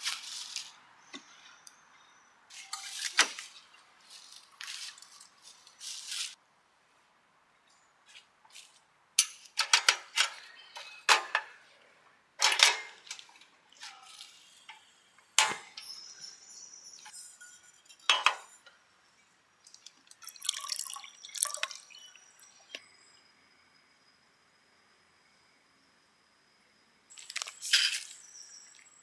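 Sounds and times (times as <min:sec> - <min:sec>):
glass and dishes clinking: 0:17.0 - 0:18.8.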